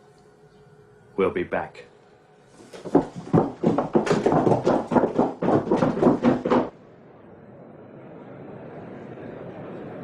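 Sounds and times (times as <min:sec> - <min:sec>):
rapid hard knocks: 0:02.7 - 0:06.7.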